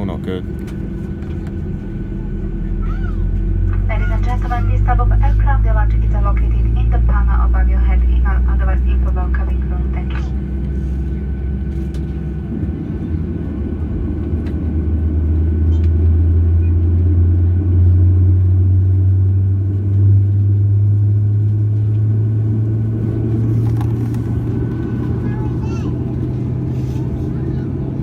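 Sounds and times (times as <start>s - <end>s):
jet engine drone in cabin: 0.0s - 28.0s.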